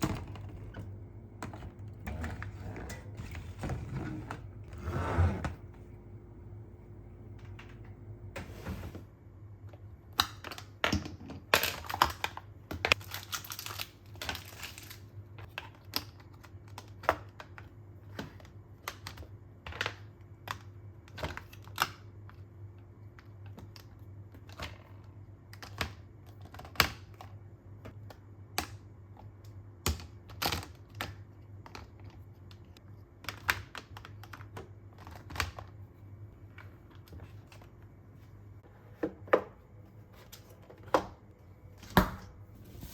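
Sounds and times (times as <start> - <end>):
faint steady hum: 0.0 - 10.6.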